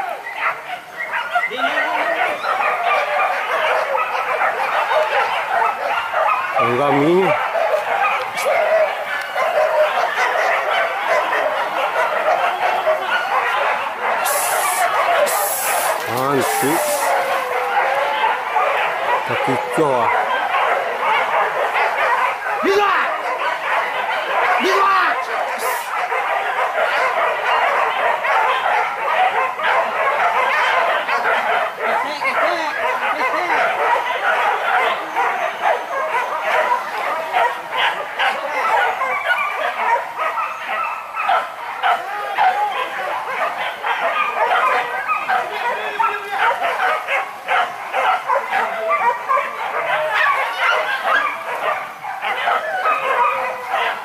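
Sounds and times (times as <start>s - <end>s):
dogs barking and yelping: 0.0s - 54.0s
man shouting: 14.2s - 17.2s, 22.6s - 23.2s, 24.6s - 25.8s.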